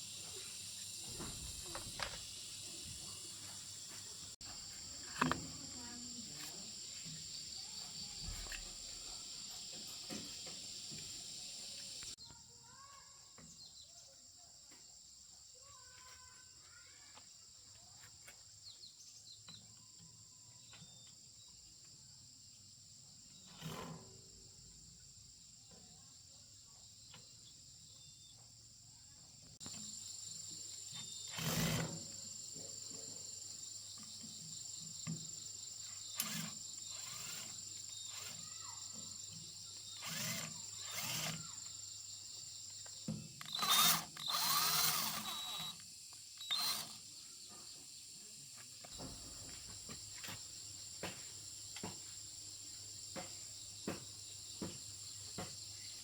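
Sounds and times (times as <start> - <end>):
high insect drone: 0.0 - 13.8, 20.3 - 56.0
short knocks and scraping: 23.4 - 24.2.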